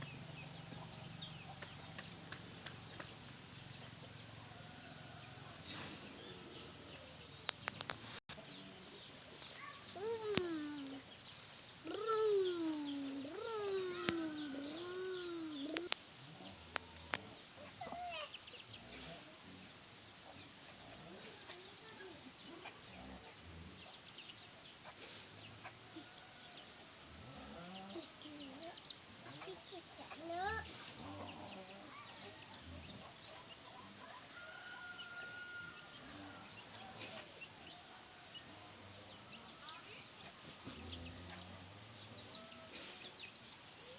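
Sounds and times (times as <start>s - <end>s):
chickens clucking: 0.0s - 43.9s
small birds chirping: 0.0s - 43.9s
sharp clicks: 7.4s - 8.1s.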